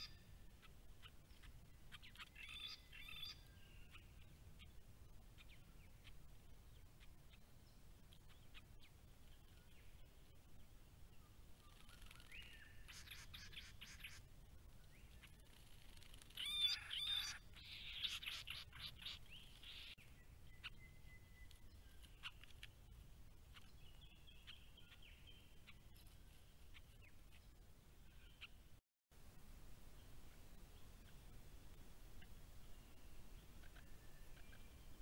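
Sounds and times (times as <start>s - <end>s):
wild birds calling: 0.0s - 4.7s, 11.7s - 14.2s, 16.0s - 20.0s
scratchy bird chatter: 11.6s - 14.2s, 15.0s - 20.0s, 21.4s - 22.8s
low hiss: 27.4s - 35.0s.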